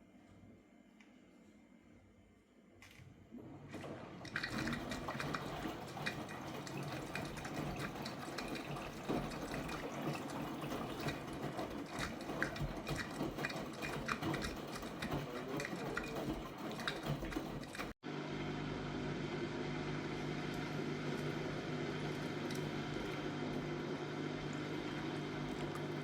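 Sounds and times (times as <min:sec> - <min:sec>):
washing machine motor hum: 0:03.1 - 0:26.0
water sloshing in washing machine: 0:03.3 - 0:18.0, 0:20.1 - 0:26.0.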